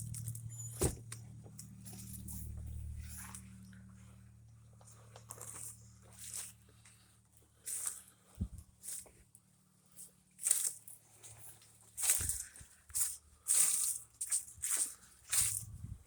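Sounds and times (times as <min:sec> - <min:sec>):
low steady rumble: 0:00.0 - 0:11.6, 0:15.1 - 0:16.0
footsteps crunching on debris: 0:04.8 - 0:07.0, 0:07.6 - 0:09.3, 0:10.0 - 0:15.8.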